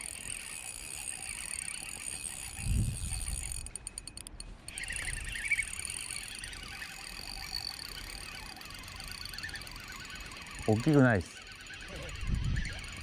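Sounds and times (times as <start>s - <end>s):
frogs croaking: 4.7s - 13.0s.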